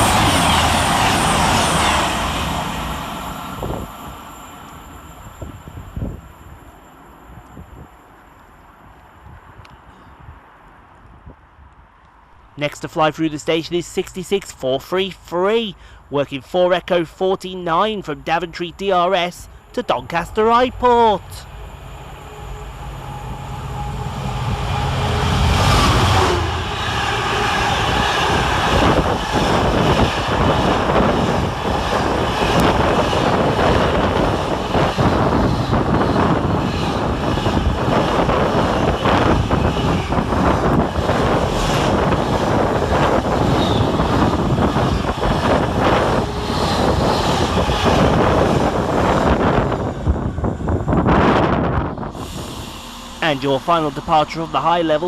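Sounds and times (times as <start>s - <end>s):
freight train rumble: 0.0s - 55.0s
locomotive diesel engine: 52.1s - 55.0s.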